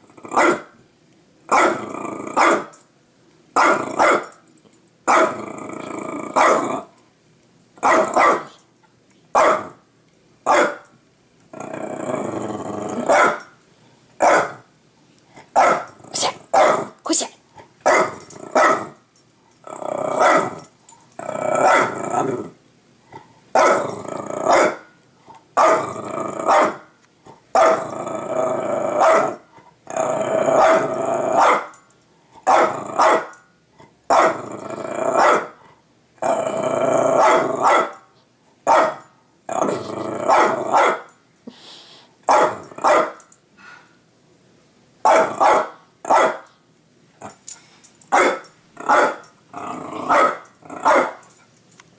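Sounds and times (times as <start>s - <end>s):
dog growling and barking: 0.0s - 0.8s, 1.5s - 2.8s, 3.6s - 4.4s, 5.1s - 7.0s, 7.8s - 8.6s, 11.5s - 13.5s, 15.4s - 19.0s, 19.6s - 24.9s, 25.6s - 31.8s, 32.4s - 41.2s, 42.3s - 43.2s, 45.0s - 46.5s, 47.2s - 51.4s.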